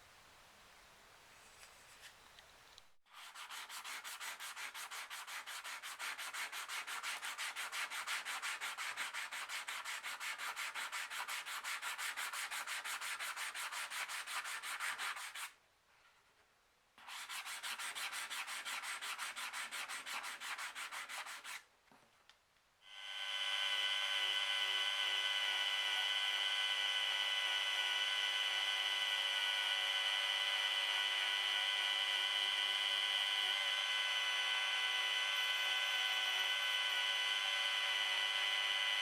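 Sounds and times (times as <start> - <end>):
hand sanding strokes: 3.1 - 15.5, 17.0 - 21.6.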